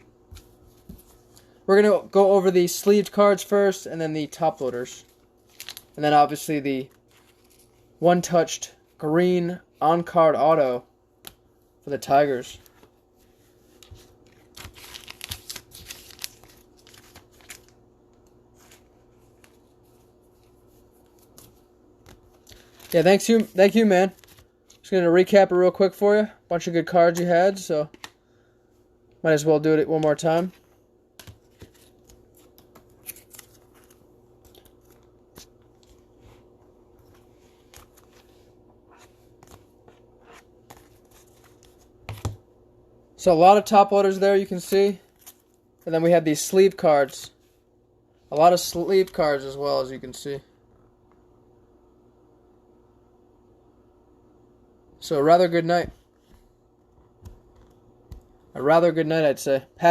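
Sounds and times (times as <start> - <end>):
faint steady hum: 0.0 - 59.9
trading cards clicking and rustling: 29.9 - 36.2.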